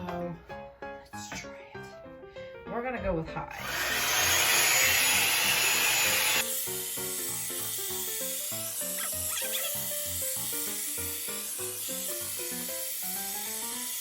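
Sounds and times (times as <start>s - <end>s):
background music melody: 0.0s - 14.0s
hair dryer brush blowing: 3.5s - 14.0s.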